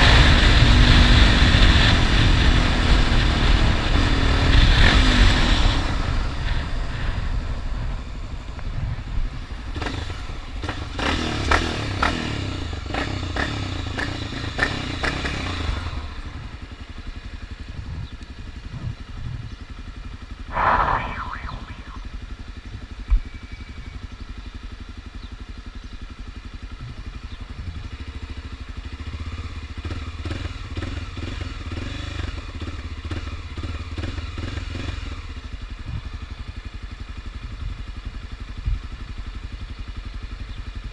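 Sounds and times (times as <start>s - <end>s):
motorcycle engine running: 12.4s - 20.3s, 24.0s - 40.9s
wind noise: 20.5s - 22.3s.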